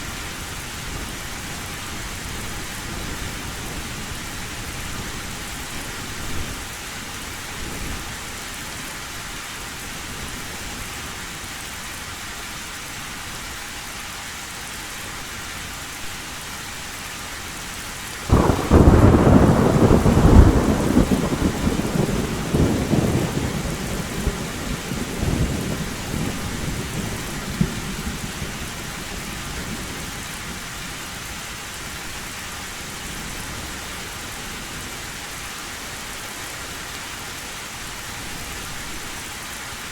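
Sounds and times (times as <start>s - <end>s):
heavy rain on metal roof: 0.0s - 39.9s
thunderclap rumbling: 18.3s - 28.8s.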